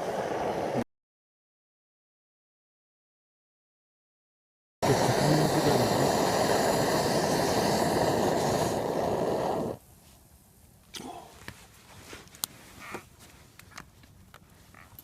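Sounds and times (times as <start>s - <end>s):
camp stove burner hissing: 0.0s - 0.8s, 4.8s - 9.9s.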